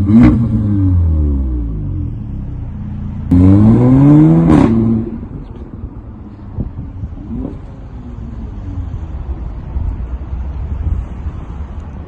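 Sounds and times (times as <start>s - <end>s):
car engine revving: 0.0s - 6.0s.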